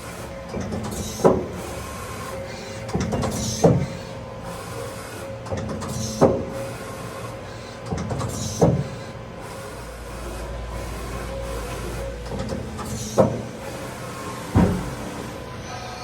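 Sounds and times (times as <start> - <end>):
lathe running with steady hum: 0.0 - 16.0
short whir ending in clunk: 14.4 - 15.3.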